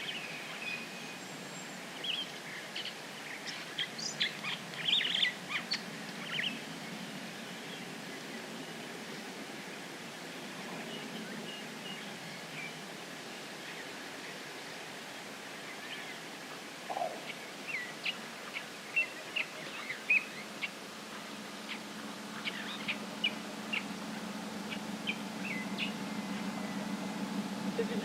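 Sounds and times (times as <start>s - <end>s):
birds chirping: 0.0s - 9.3s, 13.6s - 28.0s
outdoor hiss: 0.0s - 28.0s
steady low hum: 20.4s - 28.0s.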